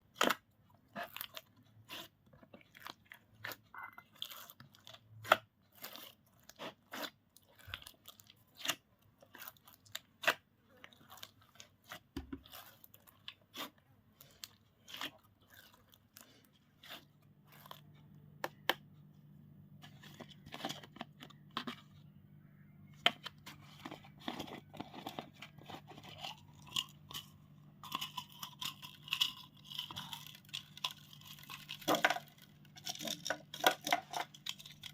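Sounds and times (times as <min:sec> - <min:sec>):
slime popping and crackling: 0:27.8 - 0:34.9.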